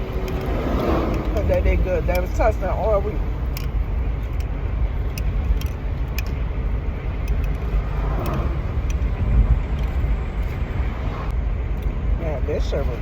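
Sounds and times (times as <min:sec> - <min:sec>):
low engine rumble: 0:00.0 - 0:13.0
light clicks: 0:07.2 - 0:09.1.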